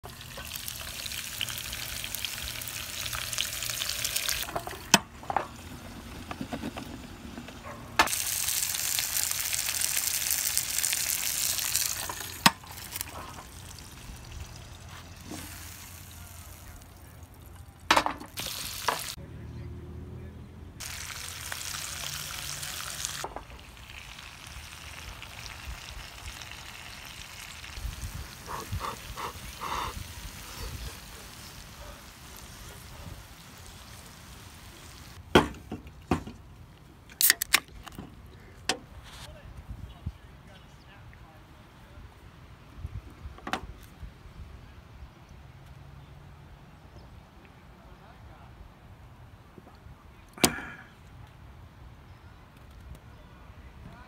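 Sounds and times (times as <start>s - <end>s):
vegetables sizzling: 0.0s - 4.5s, 8.1s - 16.7s, 18.4s - 19.2s, 20.8s - 35.2s.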